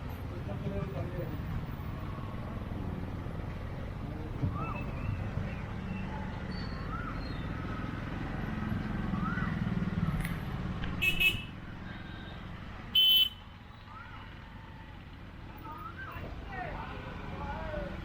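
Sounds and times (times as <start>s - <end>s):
traffic engine rumble: 0.0s - 18.0s
car horn honks: 11.0s - 12.3s, 12.9s - 13.5s.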